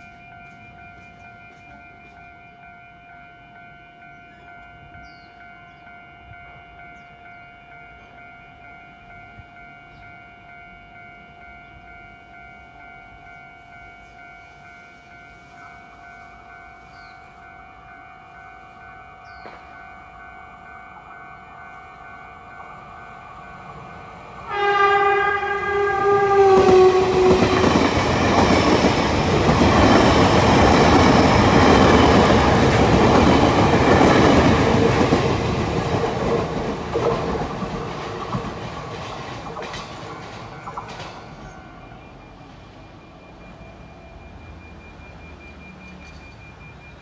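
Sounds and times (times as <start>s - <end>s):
train rumble and wheel clatter: 0.0s - 47.0s
train horn blast: 24.3s - 28.3s.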